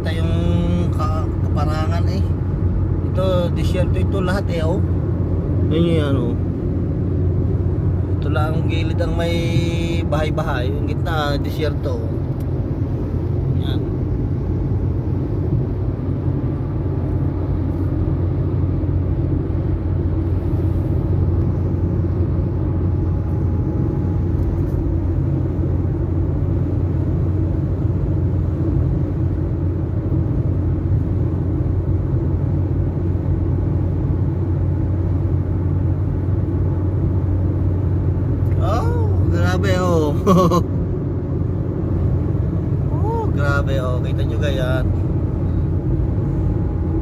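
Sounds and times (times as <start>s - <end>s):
vehicle engine and road noise: 0.0s - 47.0s.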